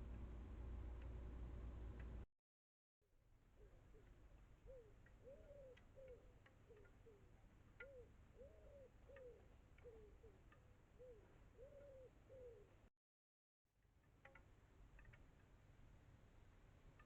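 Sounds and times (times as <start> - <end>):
dove cooing softly: 3.6 - 12.9
faint high ticks: 4.0 - 12.0, 14.0 - 15.5.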